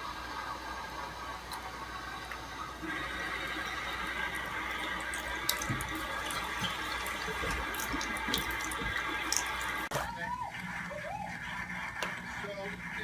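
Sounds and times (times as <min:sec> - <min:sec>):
running water rushing: 0:01.4 - 0:09.9.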